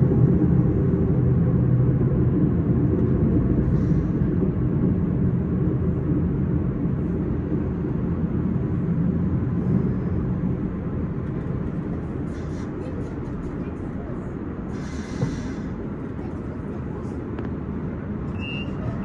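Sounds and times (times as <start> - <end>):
commuter train rumbling: 0.0 - 19.0.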